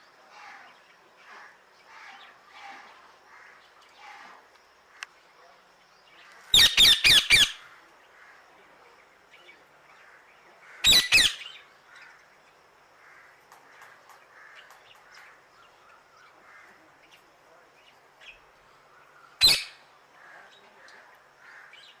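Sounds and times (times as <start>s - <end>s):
birds squawking harshly: 6.3s - 7.8s, 10.2s - 12.1s, 19.4s - 19.8s.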